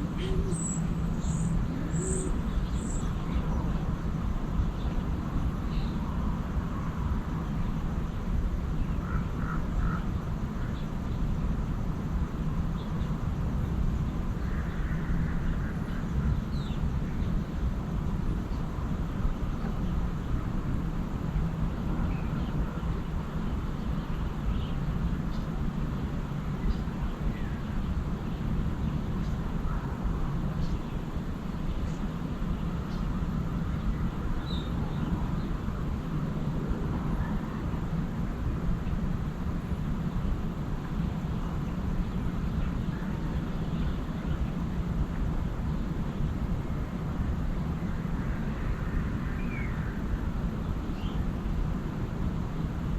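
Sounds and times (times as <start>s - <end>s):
steady low rumble: 0.0s - 52.9s
bird chirps: 0.2s - 3.2s.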